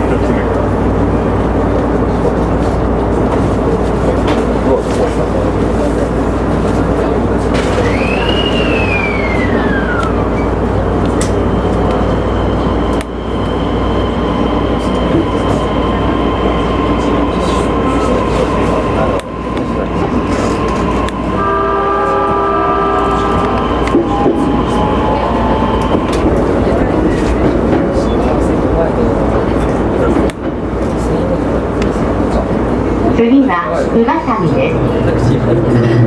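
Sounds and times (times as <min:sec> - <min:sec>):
train wheels rumbling on rail: 0:00.0 - 0:36.0
high squeal: 0:07.7 - 0:10.6, 0:22.0 - 0:26.2
steady tones: 0:08.5 - 0:29.2.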